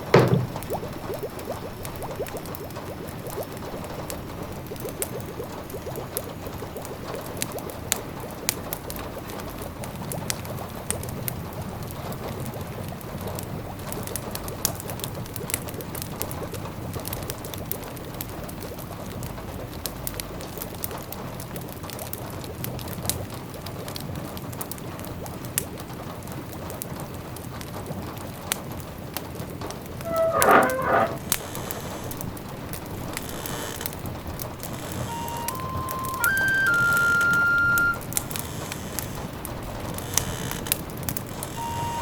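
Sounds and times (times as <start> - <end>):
wood fire crackling: 0.0 - 1.3, 29.8 - 42.0.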